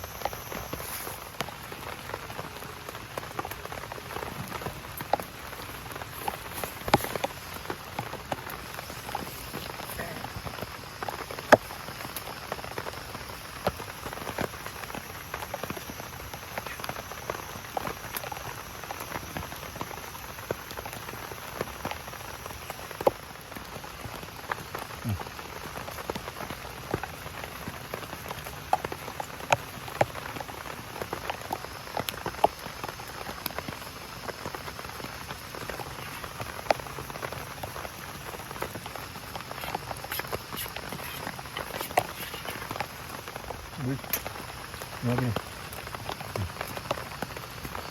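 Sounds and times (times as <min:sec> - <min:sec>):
rain falling: 0:00.0 - 0:47.9.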